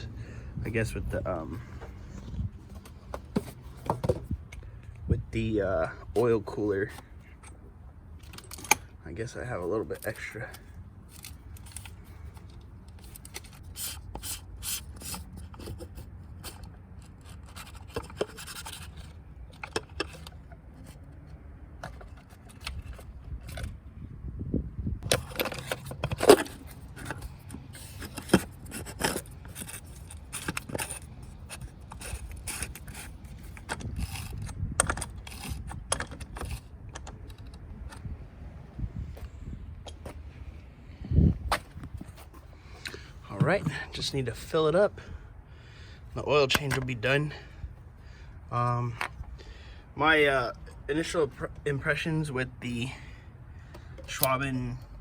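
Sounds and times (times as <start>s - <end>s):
clicks and knocks of tools: 25.0s - 38.1s.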